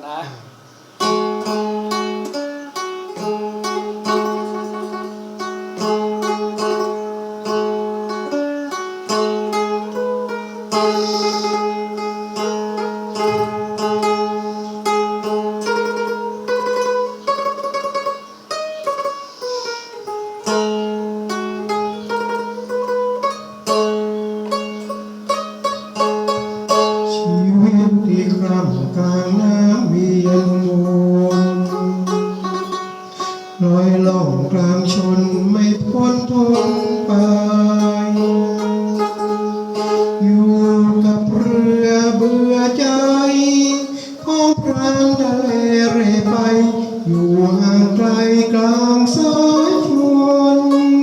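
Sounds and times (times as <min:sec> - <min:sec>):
plucked lute melody: 0:00.9 - 0:51.0.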